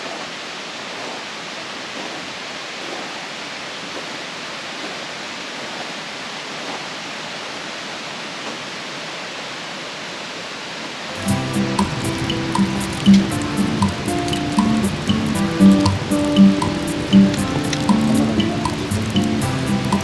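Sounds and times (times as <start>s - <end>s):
water rushing: 11.2s - 20.0s
faint ticks: 11.3s - 20.0s.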